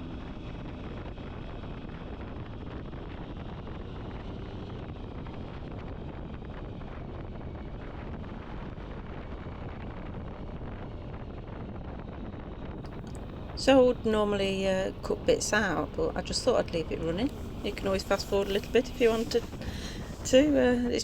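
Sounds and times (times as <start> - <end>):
wind rushing over microphone: 0.0 - 21.0
road noise: 12.8 - 21.0.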